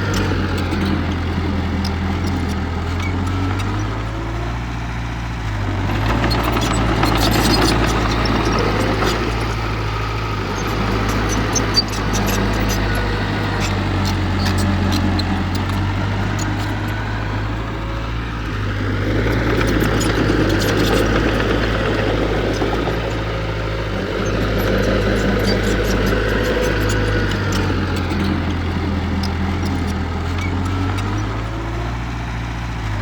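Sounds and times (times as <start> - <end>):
heavy machinery diesel engine: 0.0 - 33.0.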